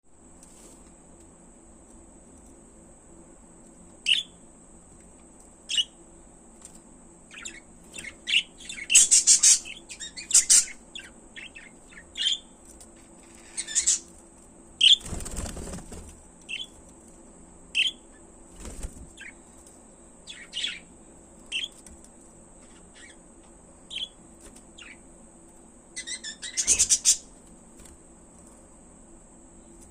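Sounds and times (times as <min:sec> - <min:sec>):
budgerigars chirping: 0:04.0 - 0:04.3, 0:07.3 - 0:12.5, 0:13.4 - 0:14.0, 0:17.8 - 0:18.0, 0:20.3 - 0:20.9, 0:23.9 - 0:24.2, 0:26.0 - 0:27.3.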